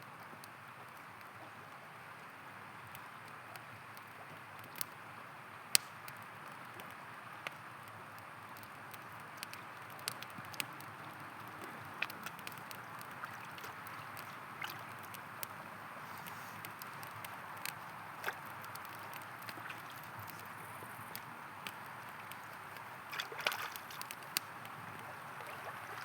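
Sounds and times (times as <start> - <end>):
campfire crackling and popping: 0.1 - 26.0
river water flowing: 10.5 - 26.0.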